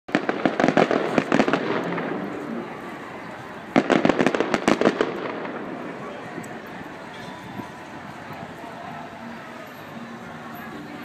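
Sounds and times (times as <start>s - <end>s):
fireworks bangs and pops: 0.1s - 2.6s, 3.7s - 5.9s
echoing rumble: 0.1s - 7.0s.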